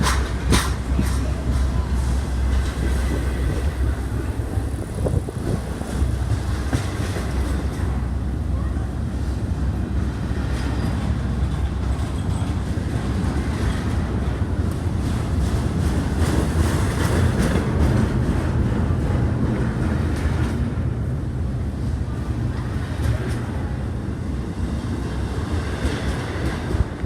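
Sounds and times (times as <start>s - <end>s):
wheels clicking over rail joints: 0.0s - 8.0s
train rumbling past: 0.0s - 27.0s.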